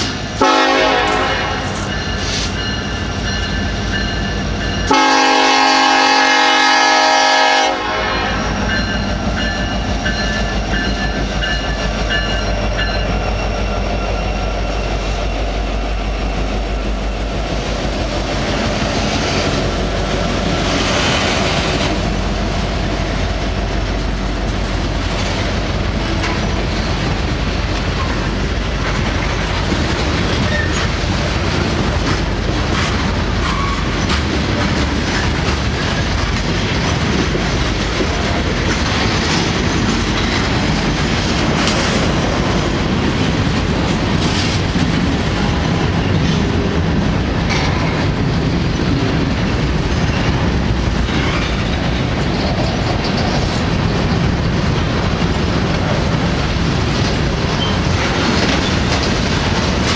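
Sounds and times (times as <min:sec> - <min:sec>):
train cars rumbling: 0:00.0 - 0:59.9
wheels clicking over rail joints: 0:24.4 - 0:59.9.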